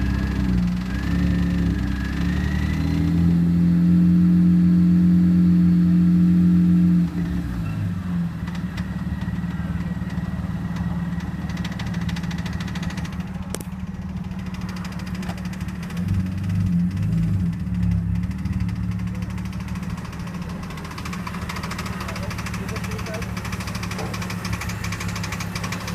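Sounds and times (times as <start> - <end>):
car engine running: 0.0 - 25.9
fast even rattling: 9.2 - 25.9.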